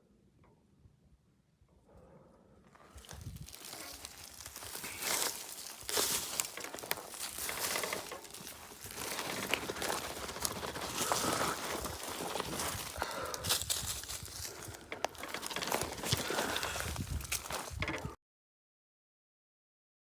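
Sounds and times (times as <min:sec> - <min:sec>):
rustling and crinkling: 0:02.8 - 0:18.2.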